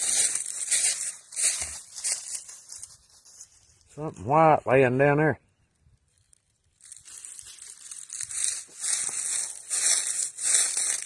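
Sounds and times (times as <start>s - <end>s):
footsteps crunching dry leaves: 0.0s - 3.9s, 6.1s - 11.0s.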